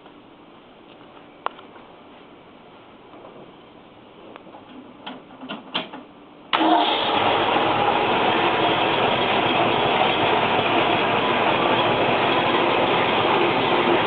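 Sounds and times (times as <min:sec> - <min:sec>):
car engine starting and running: 0:06.5 - 0:14.0.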